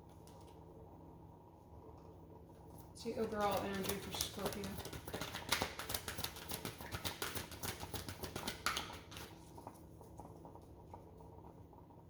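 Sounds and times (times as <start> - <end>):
cards being shuffled: 3.5 - 9.3.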